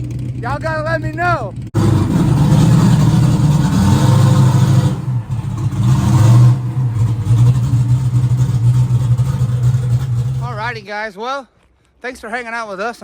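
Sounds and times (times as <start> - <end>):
loud race car engine: 1.6 - 10.8.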